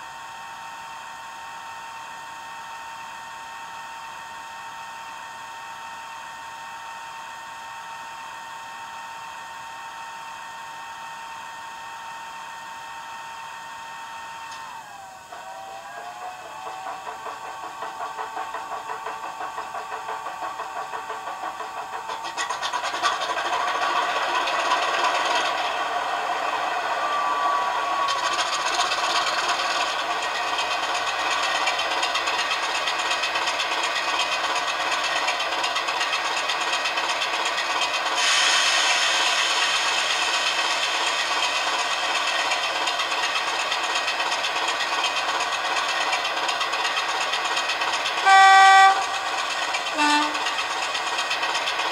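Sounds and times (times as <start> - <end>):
diesel engine sound from small speaker: 12.8 - 35.8, 43.3 - 51.9.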